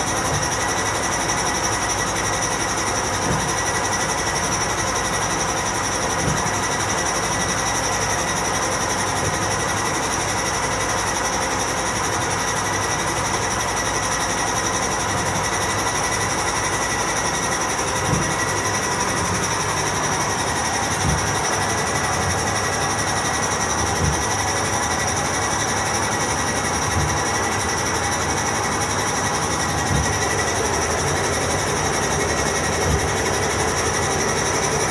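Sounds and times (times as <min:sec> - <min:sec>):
washing machine spinning: 0:00.0 - 0:34.9
knocking in washing machine: 0:00.1 - 0:01.0, 0:03.0 - 0:03.9, 0:15.0 - 0:34.9.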